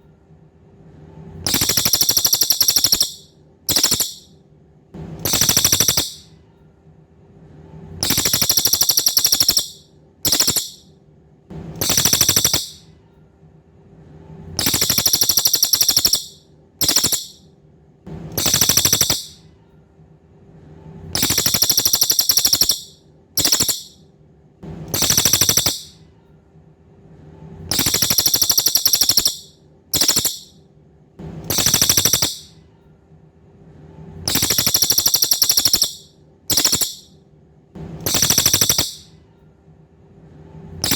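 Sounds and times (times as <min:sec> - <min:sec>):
faint low hum: 0:00.0 - 0:40.9
songbird buzzy trills: 0:01.5 - 0:04.3, 0:05.2 - 0:06.3, 0:08.0 - 0:10.8, 0:11.8 - 0:12.8, 0:14.6 - 0:17.4, 0:18.3 - 0:19.4, 0:21.2 - 0:24.0, 0:24.9 - 0:26.0, 0:27.7 - 0:30.5, 0:31.5 - 0:32.5, 0:34.3 - 0:37.1, 0:38.0 - 0:39.1.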